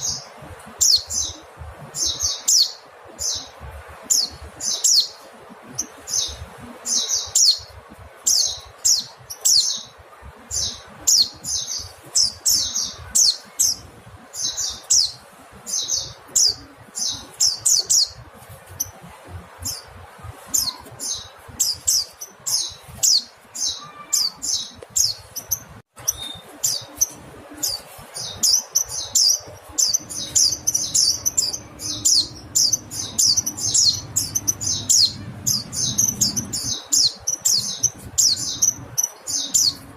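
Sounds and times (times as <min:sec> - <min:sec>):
bird chirping rapidly: 0:19.6 - 0:39.9.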